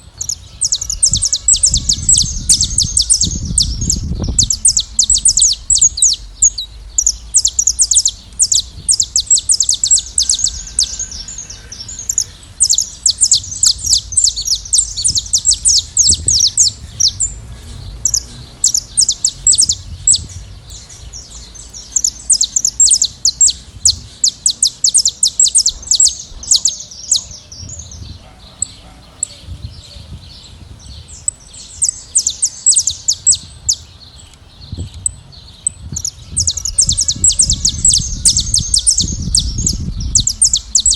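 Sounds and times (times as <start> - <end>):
finches chirping in a flock: 0.0 - 40.9.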